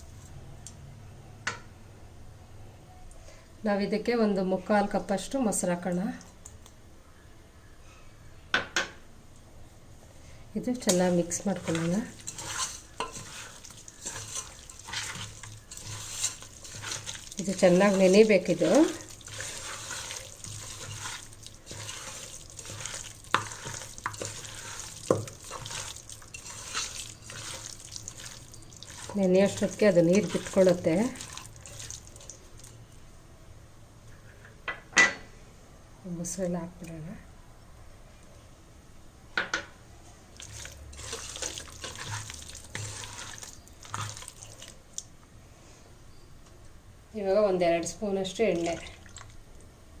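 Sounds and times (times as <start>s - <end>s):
wet stirring and mixing: 10.7s - 32.9s, 40.3s - 45.2s, 48.3s - 49.7s.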